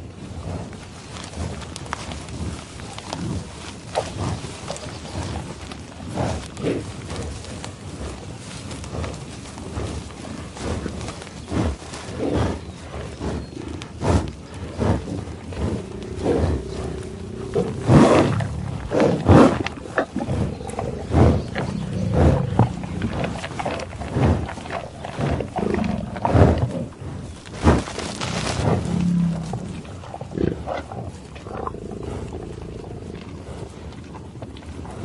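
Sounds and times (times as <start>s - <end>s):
lion growling: 14.7s - 34.3s.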